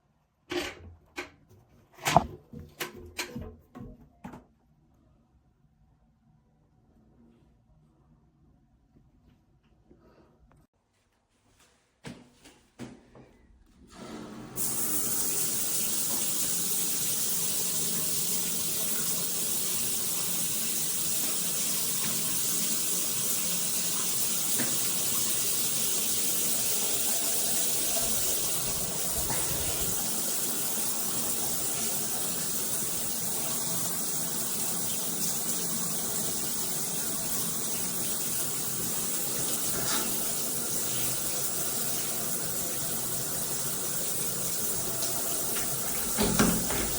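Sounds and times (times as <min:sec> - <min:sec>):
shower water spraying: 0:14.6 - 0:46.9.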